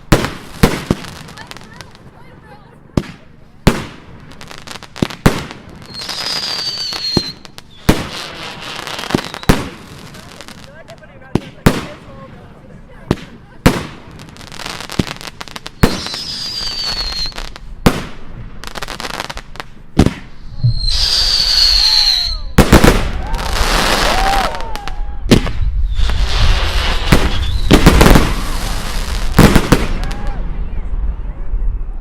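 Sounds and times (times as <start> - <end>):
firework bangs: 0.0 - 2.0, 2.9 - 12.4, 13.0 - 30.6
firework crackling: 0.0 - 30.5
firework whistles: 5.8 - 9.7, 15.5 - 17.6, 20.1 - 30.8.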